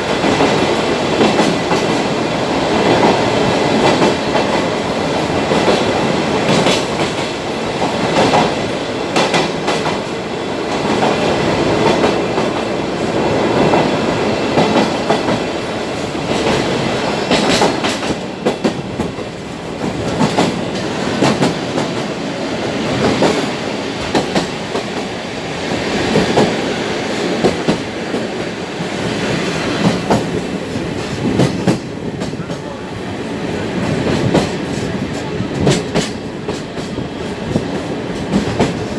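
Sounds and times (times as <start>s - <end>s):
train carriage rumble: 0.0s - 38.9s
wheels clicking over rail joints: 0.1s - 22.2s, 33.8s - 38.9s.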